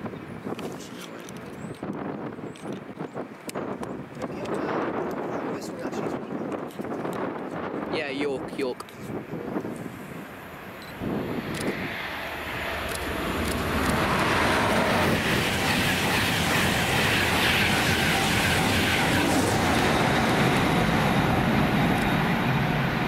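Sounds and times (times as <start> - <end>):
train passing at speed: 9.2 - 23.0.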